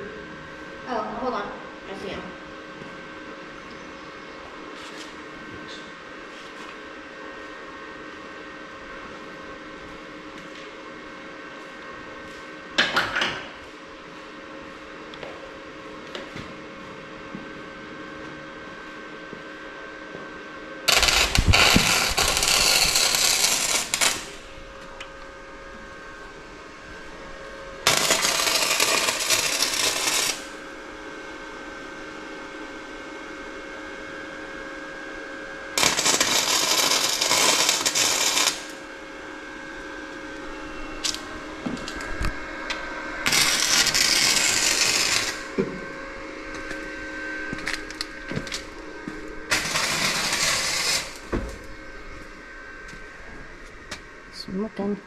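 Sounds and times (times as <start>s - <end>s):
welder hum: 20.8s - 55.0s
welding arc crackle: 20.9s - 25.4s, 27.8s - 30.8s, 35.8s - 38.9s, 43.2s - 45.6s, 49.5s - 51.7s.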